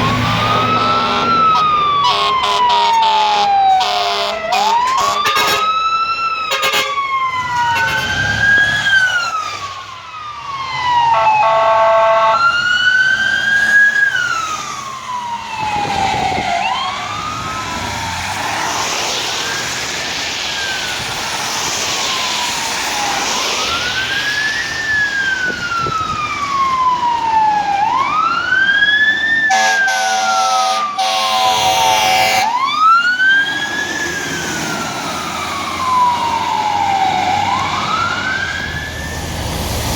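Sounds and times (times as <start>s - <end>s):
horn blasts: 0.0s - 5.8s, 6.5s - 7.0s, 11.1s - 12.4s, 29.5s - 32.6s
fire truck siren wailing: 0.0s - 39.9s.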